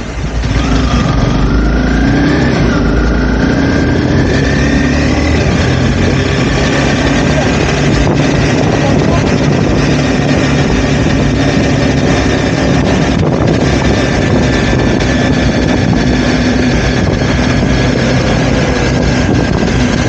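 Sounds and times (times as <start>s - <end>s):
motorcycle engine running: 0.0s - 20.0s
wind noise on microphone: 0.0s - 20.0s.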